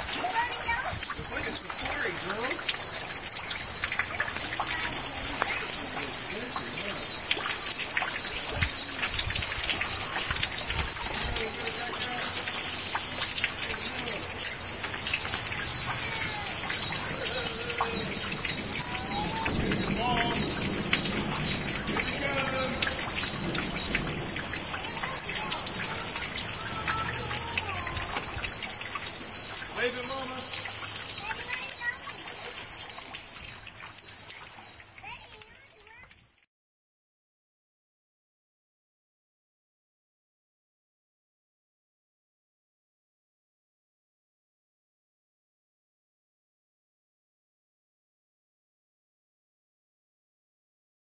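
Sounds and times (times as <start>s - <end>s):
rain falling on water: 0.0s - 36.5s.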